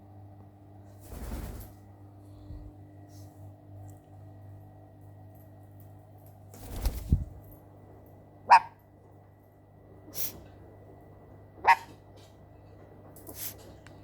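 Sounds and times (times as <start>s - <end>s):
dog barking: 8.5s - 8.8s, 11.6s - 12.0s.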